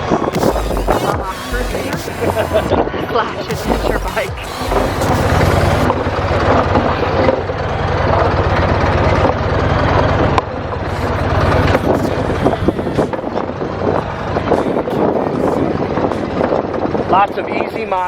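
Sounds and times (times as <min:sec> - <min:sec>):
rushing noise: 0:00.0 - 0:09.3
motorcycle engine running: 0:03.5 - 0:13.9.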